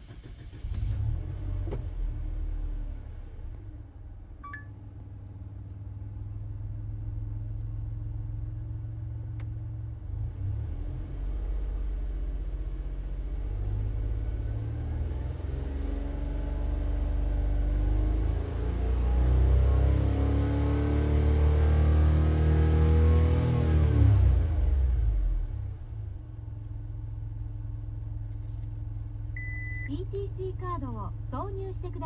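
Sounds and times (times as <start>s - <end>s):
car engine running: 24.6s - 32.0s.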